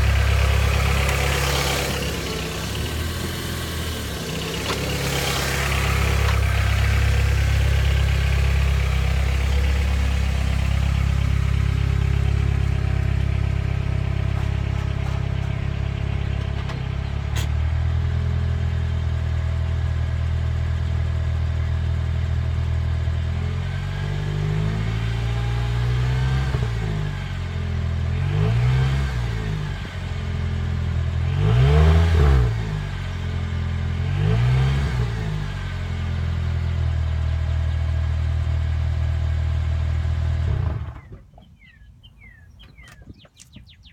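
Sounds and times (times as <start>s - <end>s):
engine throttle blips: 0.0s - 19.5s, 40.2s - 43.9s
car exhaust idling: 0.0s - 23.4s.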